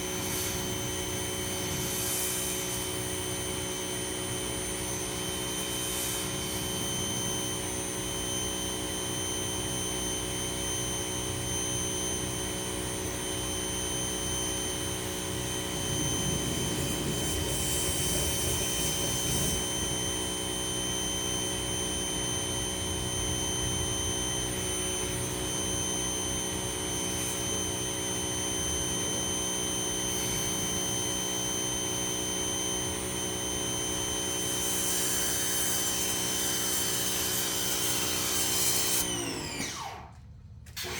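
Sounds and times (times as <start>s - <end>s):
pressure washer hiss: 0.0s - 10.6s, 12.6s - 22.4s, 34.4s - 39.6s
pressure washer motor whine: 0.0s - 40.9s.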